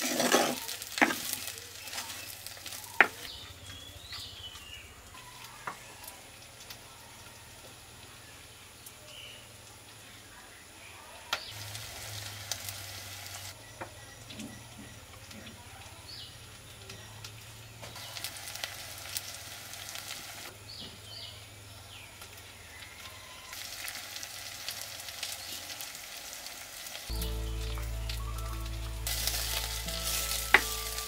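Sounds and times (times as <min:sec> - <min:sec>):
food sizzling in hot oil: 0:00.0 - 0:03.3, 0:11.4 - 0:13.6, 0:17.8 - 0:20.5, 0:22.3 - 0:31.0.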